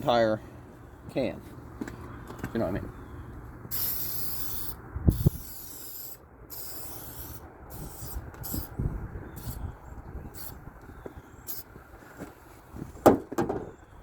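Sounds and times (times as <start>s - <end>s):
aerosol can spraying: 3.7s - 8.7s.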